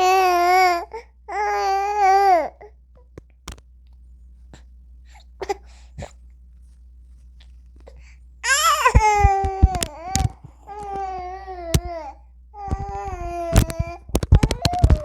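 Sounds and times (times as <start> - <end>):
newborn baby crying: 0.0 - 2.7, 8.4 - 15.0.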